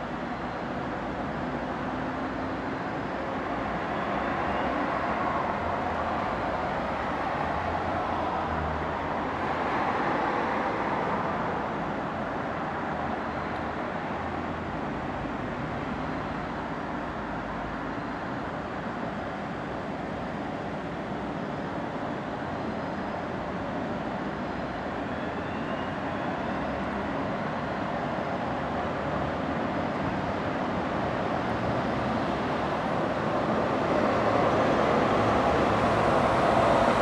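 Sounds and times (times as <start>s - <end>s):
highway traffic noise: 0.0s - 37.0s.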